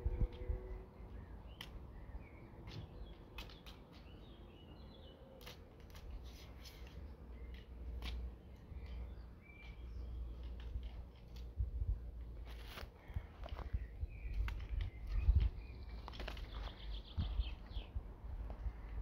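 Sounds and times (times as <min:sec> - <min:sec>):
bird chirps: 0:08.4 - 0:10.4, 0:13.6 - 0:18.0.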